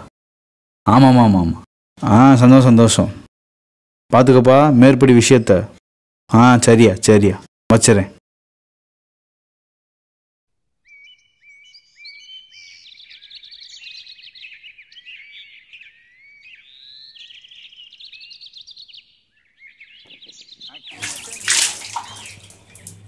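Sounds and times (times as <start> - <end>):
birds chirping and whistling: 10.9 - 23.0.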